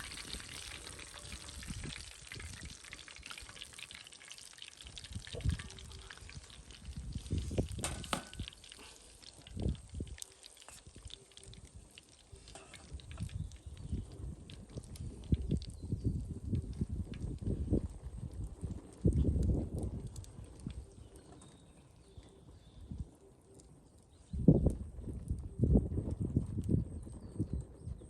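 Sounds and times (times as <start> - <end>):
hot oil sizzling: 0.0 - 20.8.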